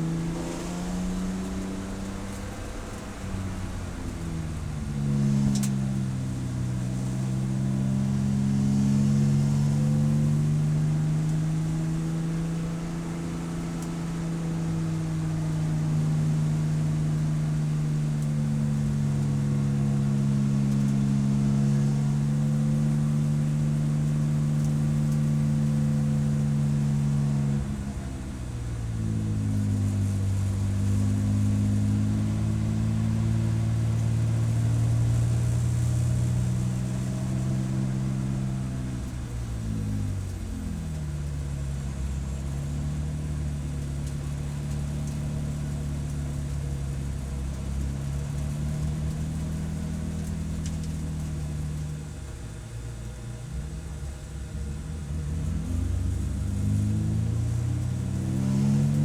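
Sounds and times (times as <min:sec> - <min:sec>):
race car engine revving: 0:54.9 - 0:59.0.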